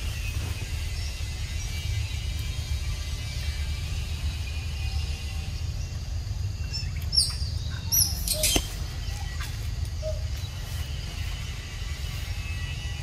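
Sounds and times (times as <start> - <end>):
high downward-sliding bird chirps: 0.0 - 13.0.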